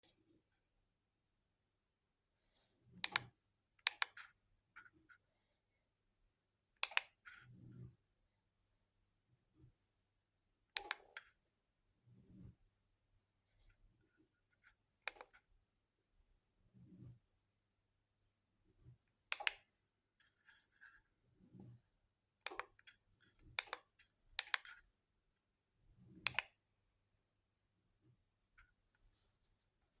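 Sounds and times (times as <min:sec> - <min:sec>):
sharp clicks: 0:19.3 - 0:19.6, 0:26.3 - 0:26.5.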